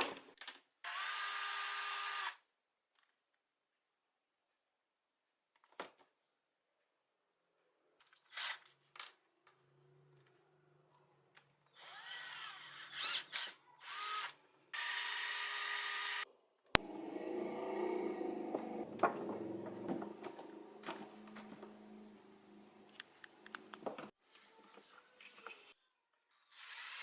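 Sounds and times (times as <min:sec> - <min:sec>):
electric power tool whirring: 0:00.9 - 0:02.4, 0:11.7 - 0:16.2.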